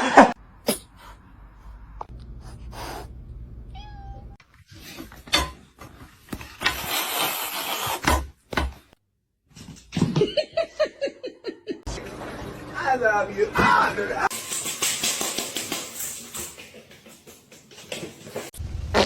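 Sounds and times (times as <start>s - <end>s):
cat meowing: 3.7s - 4.4s.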